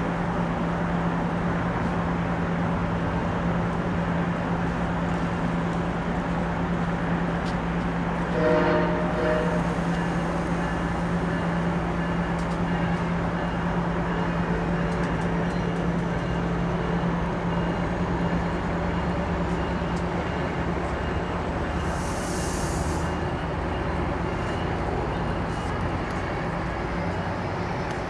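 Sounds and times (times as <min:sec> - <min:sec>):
rumble of rolling train cars: 0:00.0 - 0:28.0
train engine drone: 0:00.0 - 0:28.0
short hiss: 0:21.8 - 0:23.1.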